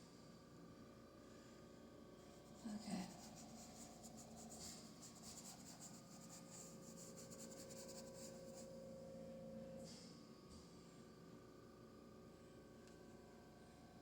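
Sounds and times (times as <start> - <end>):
faint steady hum: 0.0 - 14.0
paintbrush scratchy strokes: 2.3 - 8.8.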